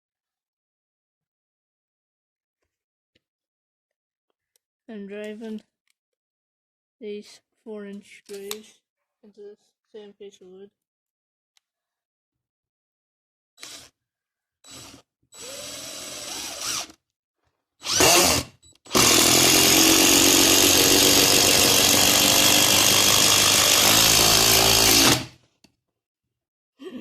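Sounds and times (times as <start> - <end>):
impact driver driving screw into wood: 13.6 - 14.0, 17.8 - 25.4.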